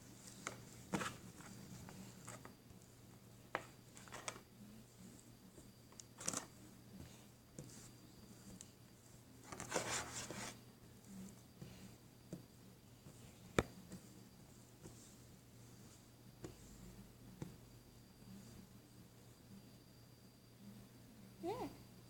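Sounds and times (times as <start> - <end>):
crackly rustle: 5.9 - 6.7.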